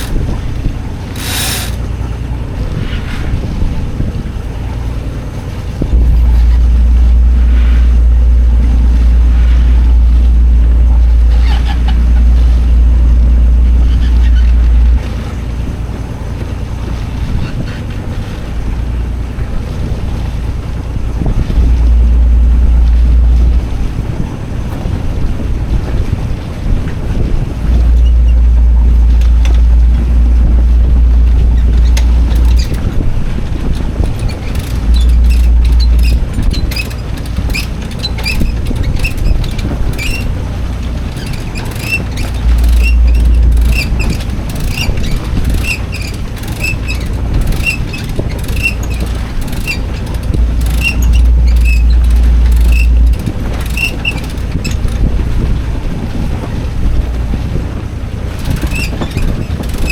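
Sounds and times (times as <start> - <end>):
short high squeaks: 0.0 - 2.0, 6.0 - 15.3, 27.6 - 55.2, 58.4 - 59.9
wind buffeting microphone: 0.0 - 59.9.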